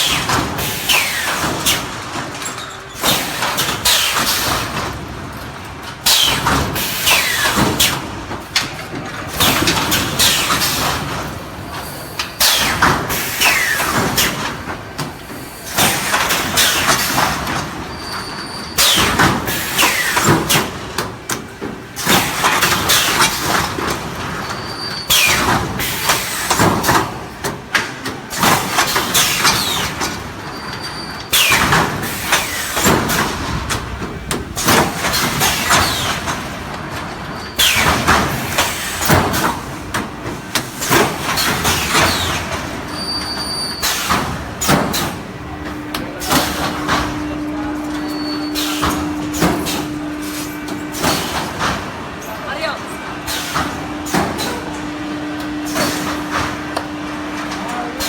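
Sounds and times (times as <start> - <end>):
welding machine clicking and clattering: 0.0 - 47.2.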